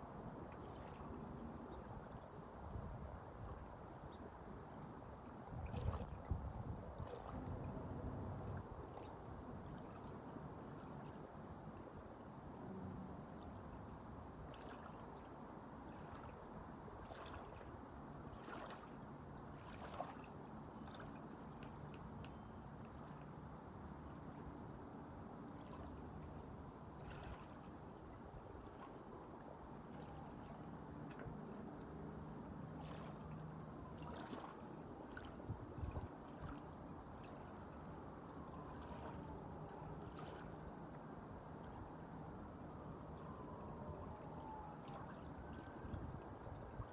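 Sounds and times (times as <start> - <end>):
waves: 0.0 - 46.9
wind: 0.0 - 46.9
wind noise on microphone: 5.5 - 8.8, 35.5 - 36.5, 45.7 - 46.9
water washing and lapping: 7.0 - 9.0, 17.0 - 21.8, 32.7 - 42.0.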